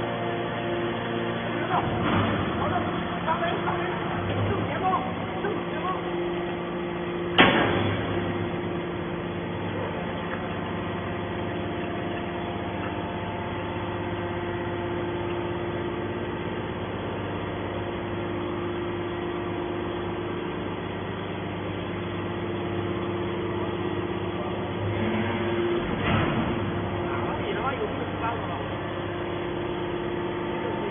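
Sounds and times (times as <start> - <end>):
scrap metal machinery droning: 18.9 - 30.9.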